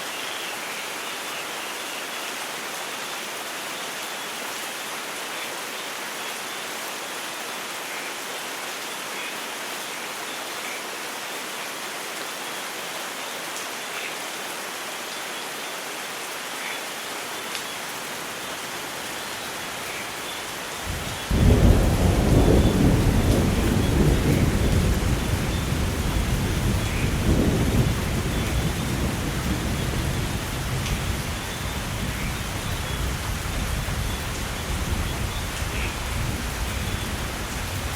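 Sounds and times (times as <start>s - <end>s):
heavy rain: 0.0s - 37.9s
thunderclap and rumble: 20.9s - 37.9s.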